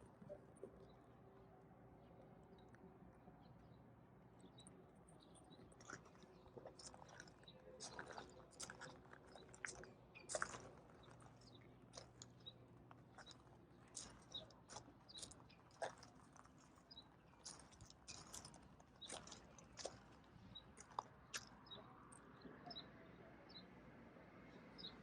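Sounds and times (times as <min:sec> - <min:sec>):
faint clicks and crunches: 0:04.6 - 0:22.2.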